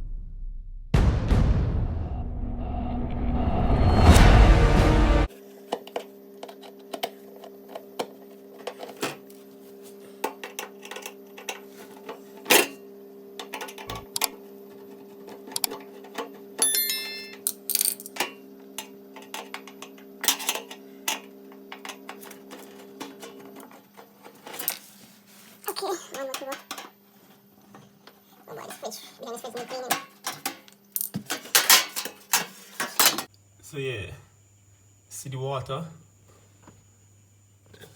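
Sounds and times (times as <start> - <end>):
low hum: 0.0 - 5.3
objects clicking and knocking: 15.3 - 24.9, 26.1 - 26.9, 29.5 - 33.3.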